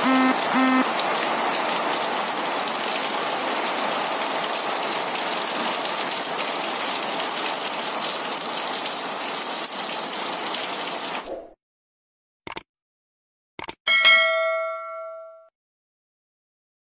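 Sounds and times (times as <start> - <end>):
heavy rain pouring: 0.0 - 11.3.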